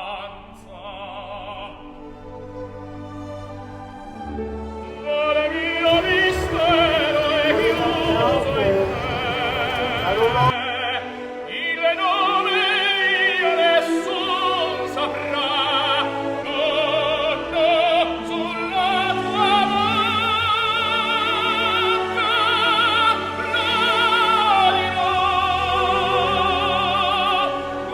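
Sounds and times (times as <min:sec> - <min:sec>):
orchestral strings: 0:00.0 - 0:27.9
operatic singing: 0:04.3 - 0:27.9
low rumble: 0:05.9 - 0:10.5.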